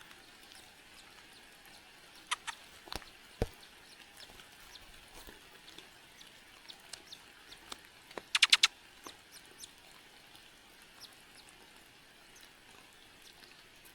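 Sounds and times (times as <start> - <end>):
faint high bird chirps: 2.2 - 2.6, 8.2 - 8.7
burst of harsh bird notes: 2.3 - 2.6, 8.3 - 8.7.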